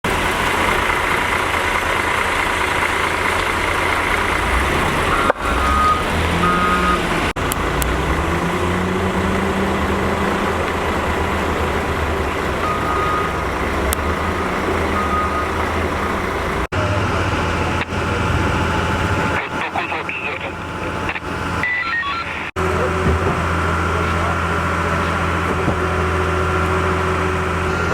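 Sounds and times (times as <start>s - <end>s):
construction machinery engines running: 0.0s - 27.9s
short high beeps: 21.6s - 22.5s.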